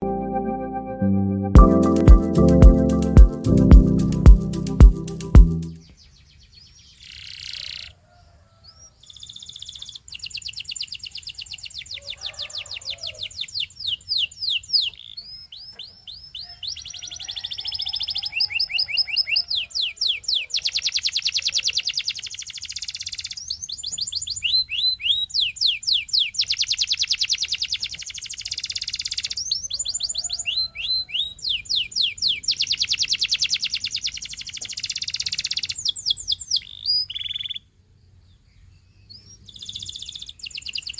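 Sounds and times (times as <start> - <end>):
canary singing trills: 9.0 - 37.7, 39.0 - 40.9.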